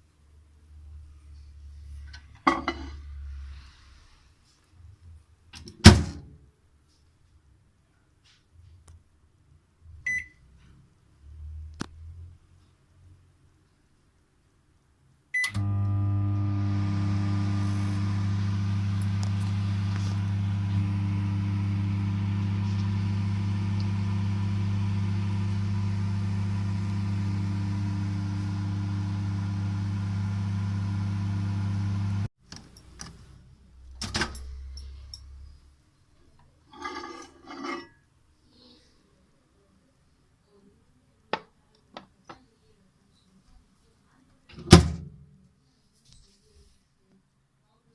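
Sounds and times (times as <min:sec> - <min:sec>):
microwave oven beep: 0:10.1 - 0:10.4, 0:15.4 - 0:32.2
microwave oven humming: 0:15.4 - 0:32.3.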